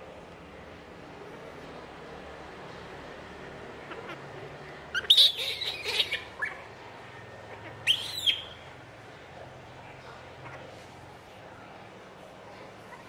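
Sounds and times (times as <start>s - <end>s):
baby monkey screaming: 5.0s - 6.6s, 7.8s - 8.4s.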